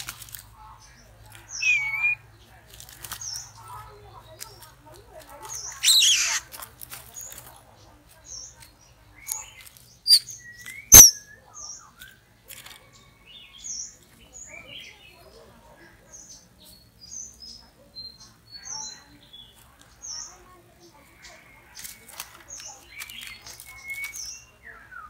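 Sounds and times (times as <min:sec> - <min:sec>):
high bird chirps: 0:01.4 - 0:02.2, 0:05.5 - 0:06.5, 0:09.2 - 0:12.2
bird harsh call: 0:01.5 - 0:02.2, 0:05.6 - 0:06.5, 0:10.9 - 0:11.3.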